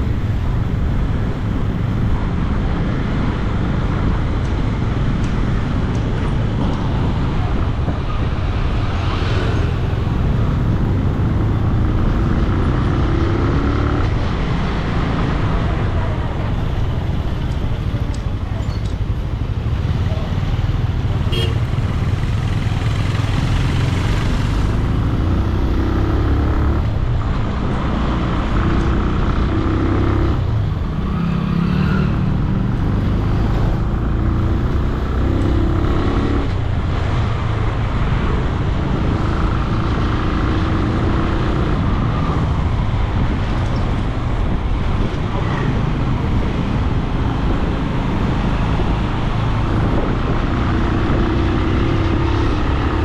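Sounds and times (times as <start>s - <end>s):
city traffic: 0.0s - 53.0s
motorcycle engine: 8.5s - 27.0s
wind on microphone: 36.4s - 53.0s.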